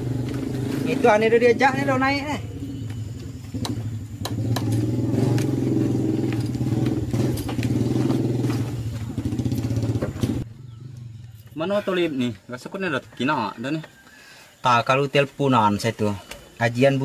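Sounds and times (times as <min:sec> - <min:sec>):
motor engine running: 0:00.0 - 0:11.5
people climbing wooden ladder: 0:02.8 - 0:10.5
footsteps on floorboards: 0:05.4 - 0:10.4.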